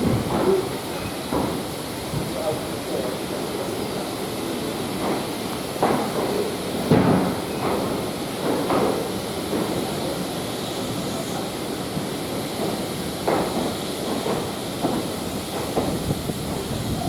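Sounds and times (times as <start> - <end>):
train knocks: 0.0 - 17.0
train rumbling and hissing: 0.0 - 17.0.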